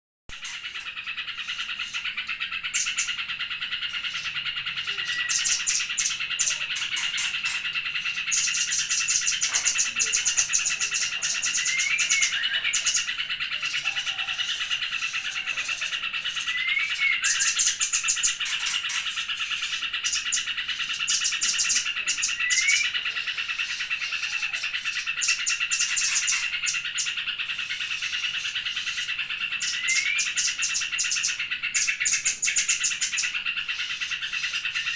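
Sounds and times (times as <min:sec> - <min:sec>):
songbirds chattering trills: 0:00.3 - 0:34.9
rising whistled bird notes: 0:10.2 - 0:13.0, 0:13.7 - 0:17.8, 0:21.5 - 0:23.0, 0:29.6 - 0:30.6.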